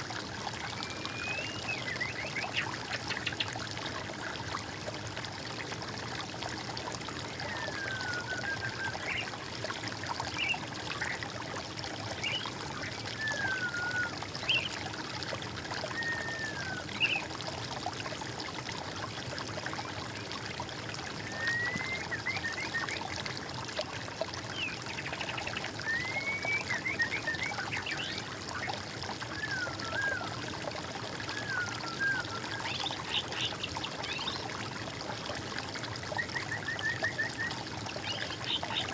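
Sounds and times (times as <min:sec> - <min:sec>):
water trickling: 0:00.0 - 0:38.9
songbird singing: 0:00.8 - 0:03.5.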